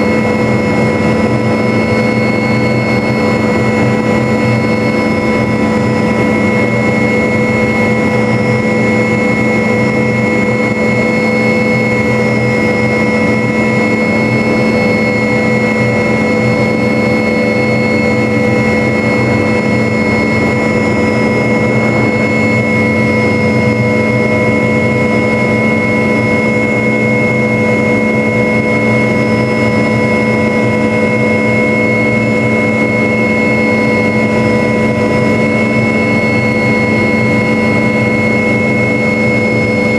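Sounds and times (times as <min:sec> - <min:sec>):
helicopter engine whine: 0:00.0 - 0:39.9
rotor rumble: 0:18.6 - 0:24.4.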